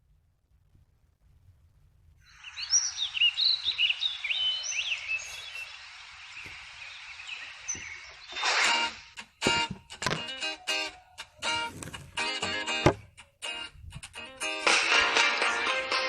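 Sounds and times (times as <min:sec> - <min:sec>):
outdoor ambience hiss: 0:00.0 - 0:16.0
birds chirping and twittering: 0:02.2 - 0:11.8.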